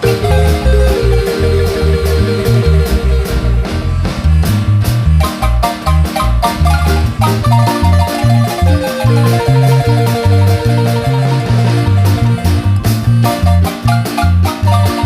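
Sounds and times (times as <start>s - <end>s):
marimba melody: 0.0s - 3.8s, 5.2s - 15.0s
deep bass line: 0.0s - 15.0s
percussion beat: 0.0s - 15.0s.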